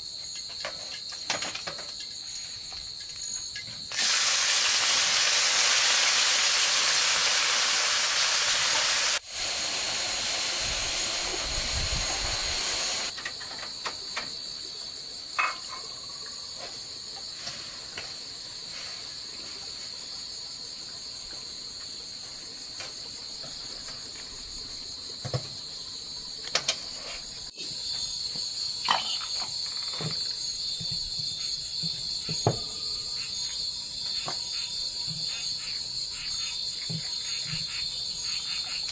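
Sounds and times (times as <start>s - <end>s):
insects trilling: 0.0s - 38.9s
food sizzling in a pan: 3.9s - 13.1s.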